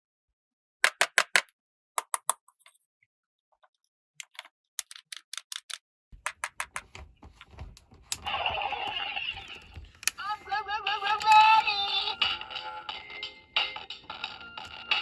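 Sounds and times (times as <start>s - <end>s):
plastic toy pieces clicking: 0.8s - 2.7s, 4.2s - 6.9s
rustling noise: 6.7s - 10.5s.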